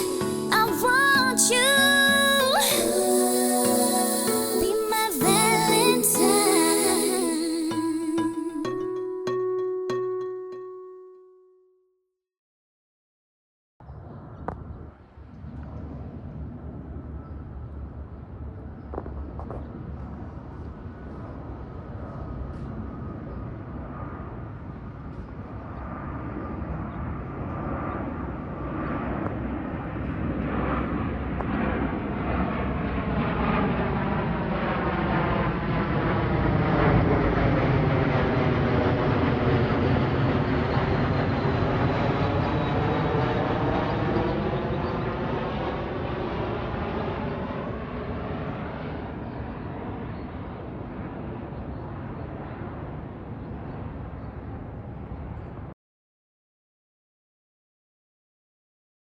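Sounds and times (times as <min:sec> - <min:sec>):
jet engines passing low: 0:13.8 - 0:55.8.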